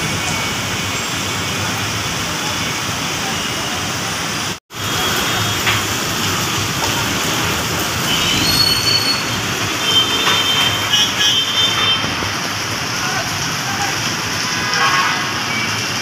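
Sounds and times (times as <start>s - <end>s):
heavy rain hissing: 0.0s - 16.0s
road traffic: 0.0s - 16.0s
thin high squeals: 8.3s - 9.4s.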